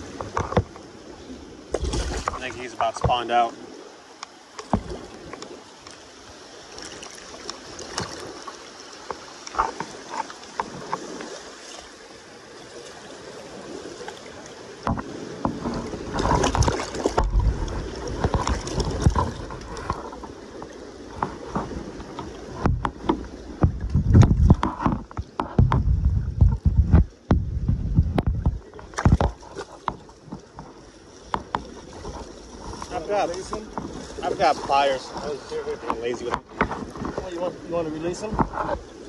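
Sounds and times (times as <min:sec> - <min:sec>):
river water: 0:00.0 - 0:39.0
wind buffeting microphone: 0:14.6 - 0:39.0.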